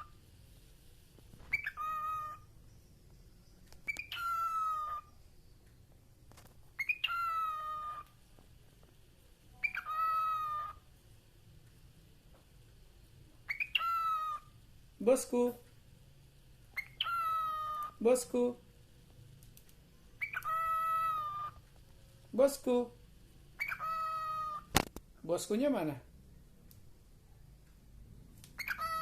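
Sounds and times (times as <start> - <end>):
parakeet making meow-like calls: 1.5 - 2.5, 3.9 - 5.1, 6.8 - 8.2, 9.6 - 10.8, 13.5 - 14.5, 16.8 - 18.0, 20.2 - 21.6, 23.6 - 24.8, 28.6 - 29.0.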